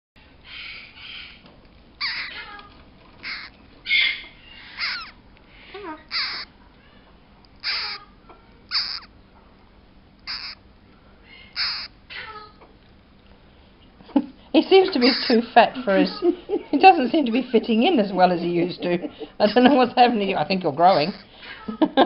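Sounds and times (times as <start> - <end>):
parrot squawking: 0.4 - 1.4, 2.0 - 2.6, 3.2 - 6.6, 7.6 - 9.2, 10.2 - 10.6, 11.2 - 12.6, 14.9 - 15.4, 20.8 - 21.7.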